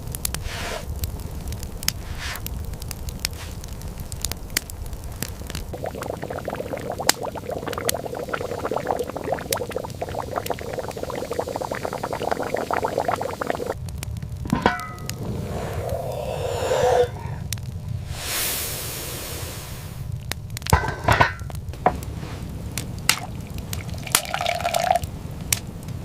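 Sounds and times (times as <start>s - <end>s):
sharp crackles: 0.0s - 20.8s, 21.4s - 26.0s
liquid bubbling and popping: 2.9s - 17.7s, 20.2s - 25.7s.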